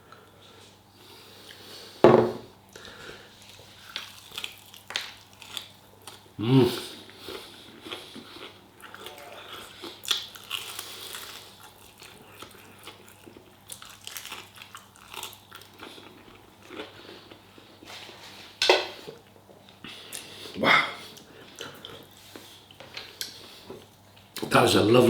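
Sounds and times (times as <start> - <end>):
person chewing and biting chicken: 3.5 - 17.6.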